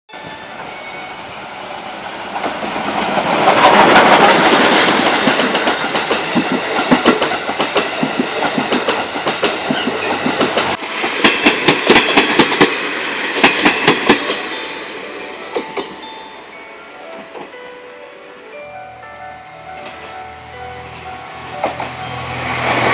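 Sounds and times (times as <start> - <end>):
train wheels clattering over joints: 2.3 - 14.5.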